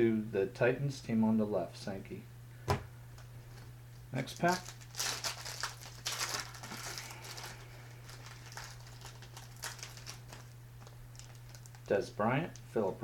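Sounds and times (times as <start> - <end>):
foil wrapper tearing and crinkling: 4.2 - 12.0
cards rustling: 4.3 - 11.9.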